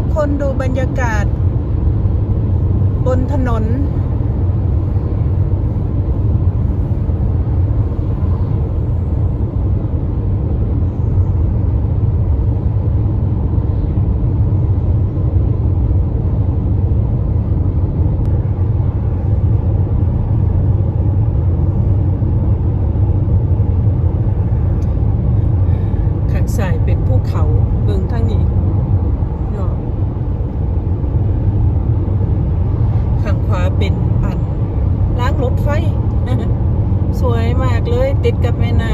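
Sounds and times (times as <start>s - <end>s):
car engine and tyre noise: 0.0s - 38.9s.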